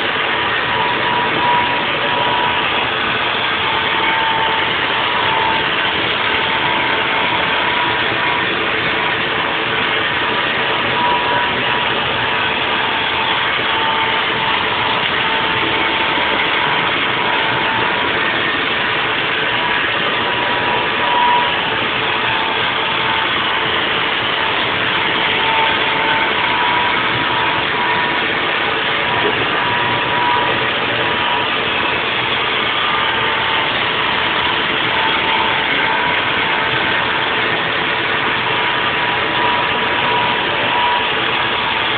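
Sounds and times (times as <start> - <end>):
milling machine whining: 0.0 - 41.9.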